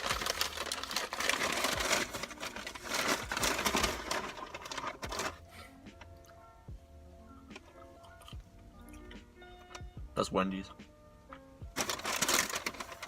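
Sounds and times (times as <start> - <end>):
crackly crinkling and crunching: 0.0 - 5.4, 11.7 - 13.0
faint background music: 0.0 - 13.0.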